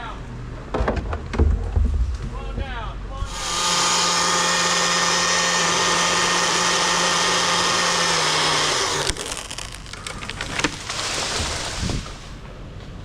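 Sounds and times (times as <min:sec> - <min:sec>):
chainsaw cutting: 0:03.3 - 0:12.4.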